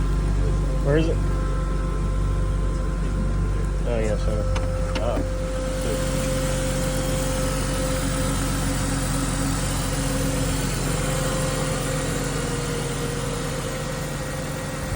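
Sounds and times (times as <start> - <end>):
car engine idling: 0.0 - 14.9.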